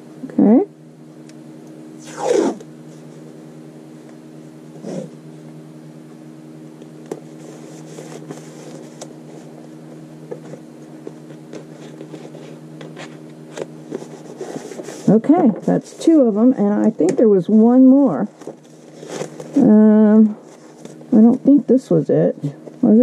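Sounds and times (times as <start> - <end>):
steady low hum: 0.0 - 23.0
tape ripping off roll: 2.0 - 2.7.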